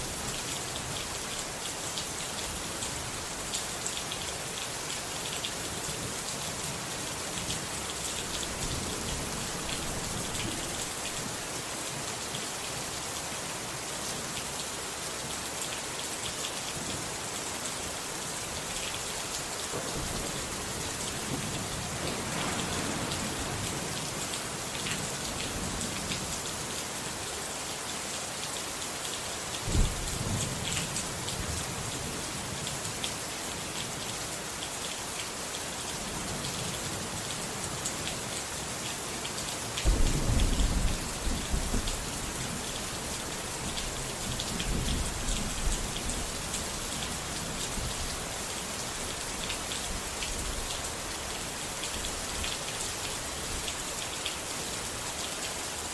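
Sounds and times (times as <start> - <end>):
steady rain falling: 0.0 - 55.9
thunder clap: 21.3 - 24.3, 39.9 - 42.0.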